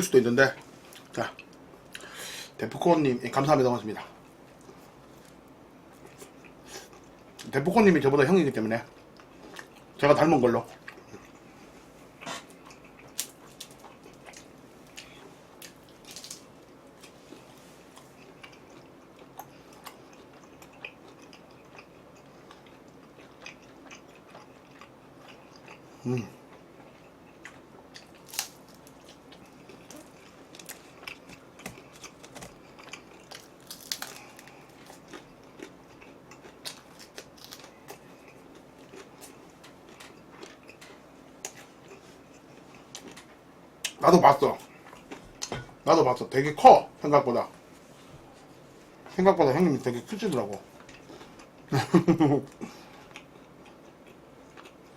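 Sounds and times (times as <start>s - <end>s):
chewing and biting food: 10.6s - 44.0s, 52.4s - 54.9s
small crunches and clicks: 12.3s - 17.2s, 27.5s - 38.0s.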